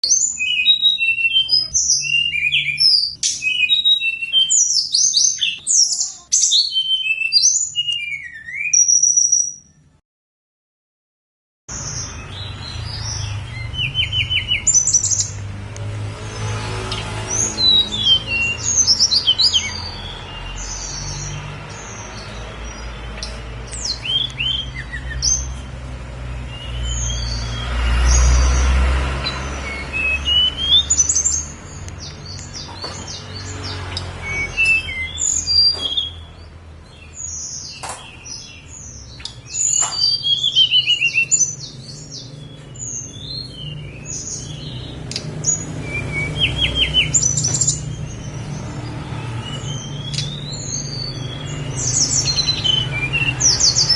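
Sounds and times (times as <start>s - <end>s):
songbird singing: 0.0s - 10.0s, 11.7s - 53.9s.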